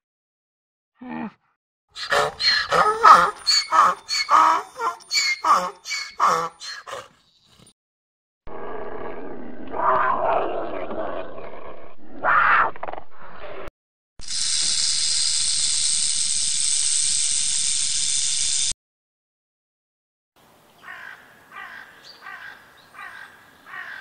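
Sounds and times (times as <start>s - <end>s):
cougar calling: 2.0s - 7.1s.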